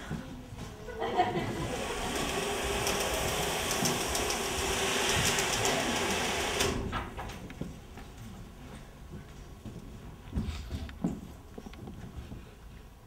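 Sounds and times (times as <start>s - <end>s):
train rattling on rails: 1.2s - 7.2s.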